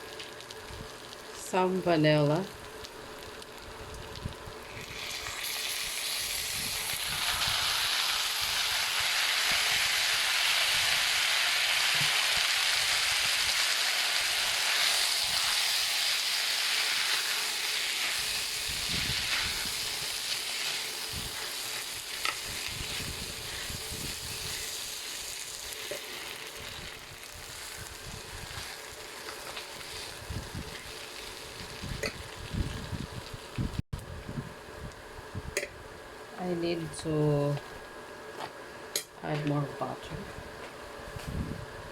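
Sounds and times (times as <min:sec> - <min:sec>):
peanuts sizzling in a pan: 0:00.0 - 0:33.5.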